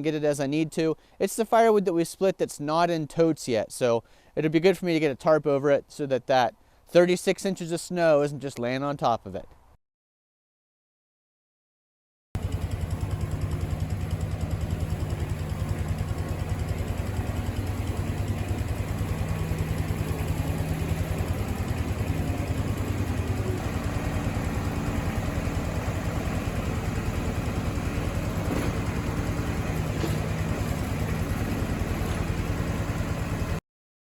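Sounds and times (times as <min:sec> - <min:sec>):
vehicle engine running: 0:12.4 - 0:33.6.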